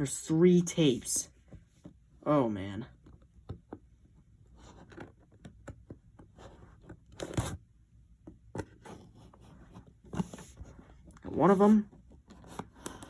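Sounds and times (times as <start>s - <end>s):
small scratches and clicks: 4.5s - 7.6s, 11.9s - 13.0s.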